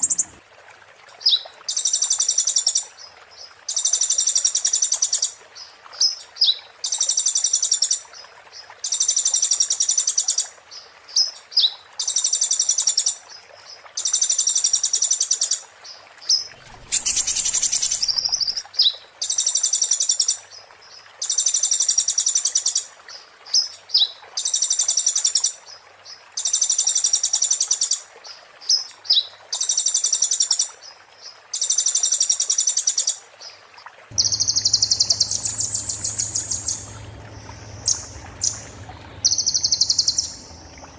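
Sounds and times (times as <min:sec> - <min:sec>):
sunbird singing trilled phrases: 0:16.6 - 0:18.6, 0:34.2 - 0:40.9
short high bird calls: 0:16.8 - 0:18.6, 0:34.2 - 0:40.9.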